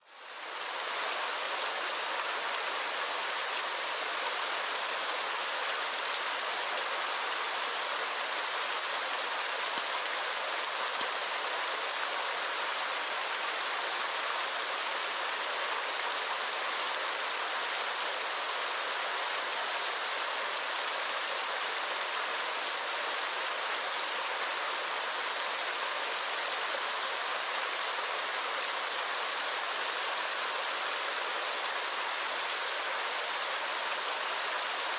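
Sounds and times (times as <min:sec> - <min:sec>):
small ticks: 0:09.8 - 0:10.0, 0:11.0 - 0:11.2.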